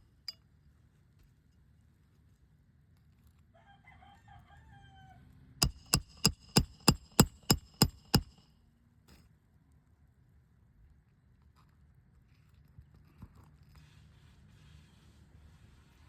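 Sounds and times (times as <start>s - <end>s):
rooster crowing: 3.6s - 5.2s
hammer striking metal with ring: 5.6s - 8.4s.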